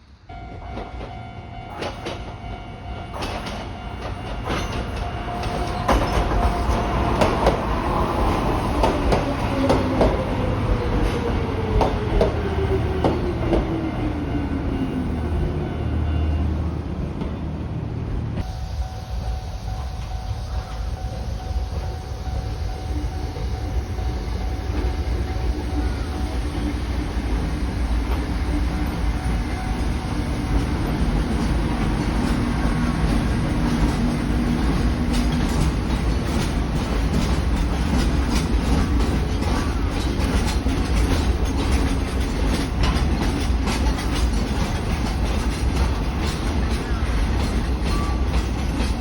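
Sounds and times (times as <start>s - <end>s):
electric train rumbling: 0.0s - 49.0s
wheels clicking over rail joints: 29.6s - 49.0s.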